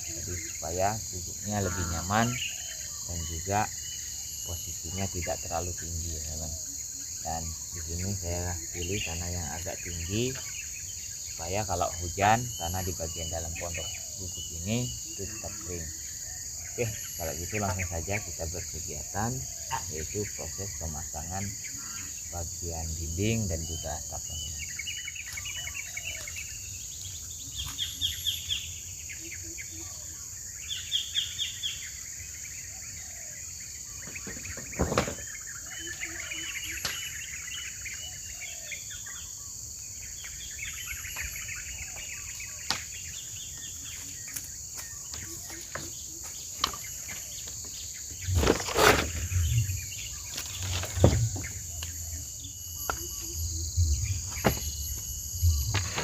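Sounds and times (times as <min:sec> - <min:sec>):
birds chirping trills: 0:00.0 - 0:56.0
insect drone: 0:00.0 - 0:56.0
knocks and thumps: 0:34.0 - 0:35.3, 0:50.6 - 0:51.6, 0:53.8 - 0:56.0.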